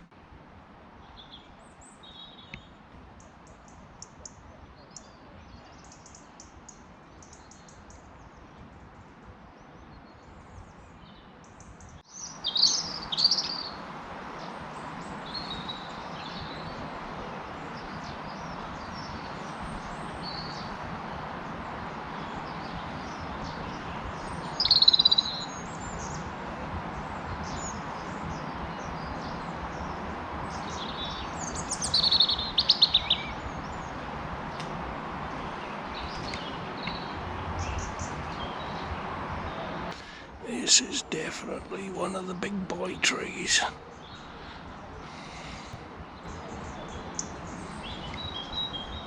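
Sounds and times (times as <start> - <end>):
birds chirping and trilling: 9.9 - 13.8, 22.2 - 26.3, 27.0 - 34.0.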